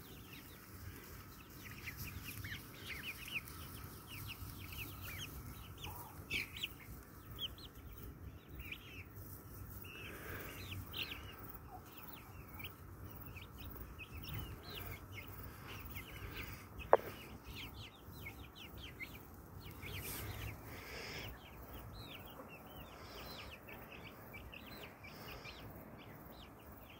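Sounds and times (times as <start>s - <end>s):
chickens clucking and calling: 0.0s - 26.9s.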